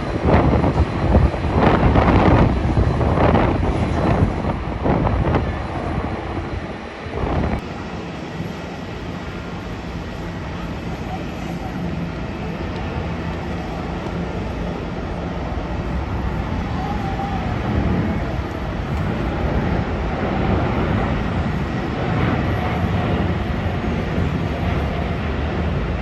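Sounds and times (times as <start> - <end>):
jet engines rushing and rumbling: 0.0 - 26.0.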